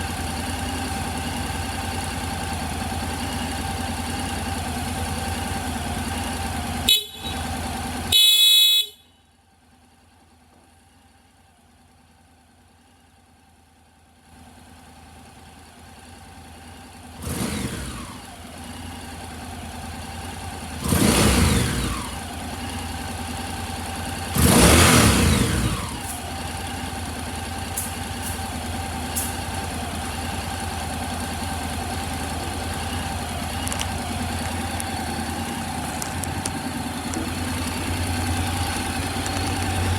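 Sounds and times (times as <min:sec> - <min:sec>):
motorcycle engine idling: 0:00.0 - 0:39.9
short horn beep: 0:06.8 - 0:09.2
engine blipped: 0:19.2 - 0:39.9.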